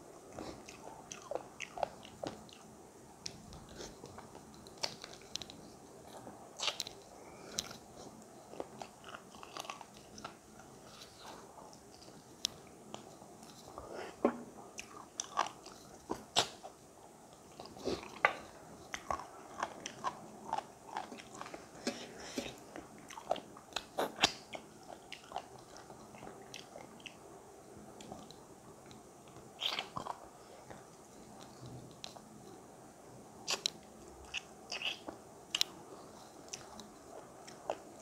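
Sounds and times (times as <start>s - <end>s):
person chewing and biting: 6.6s - 7.8s, 8.5s - 11.4s, 14.8s - 16.7s, 18.9s - 27.2s, 33.5s - 35.7s
crunchy mouth clicks: 33.5s - 35.8s.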